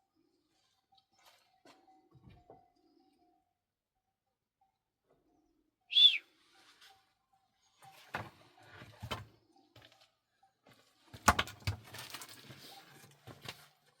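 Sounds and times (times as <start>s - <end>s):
objects knocking and clattering: 11.1s - 12.4s.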